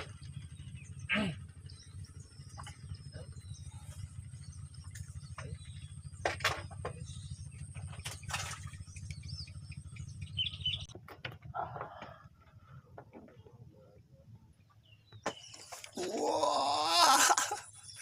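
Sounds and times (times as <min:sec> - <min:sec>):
small birds chirping: 0:00.0 - 0:11.0, 0:11.6 - 0:18.0
low droning hum: 0:00.0 - 0:18.0.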